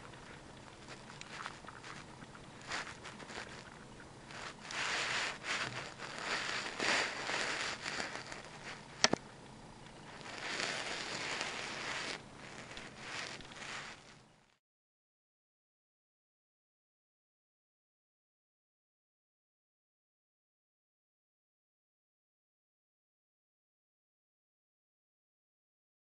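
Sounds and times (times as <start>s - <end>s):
hamster rustling seeds: 0.0s - 9.2s, 10.0s - 14.6s.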